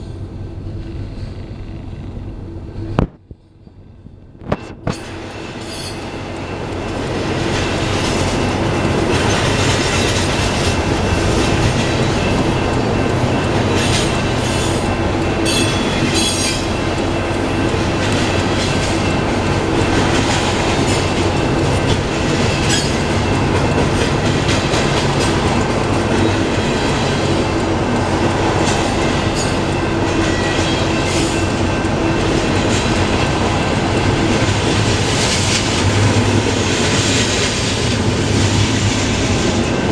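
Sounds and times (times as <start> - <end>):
freight train wheels rumbling: 0.0 - 39.9
high wheel squeals: 7.8 - 17.4.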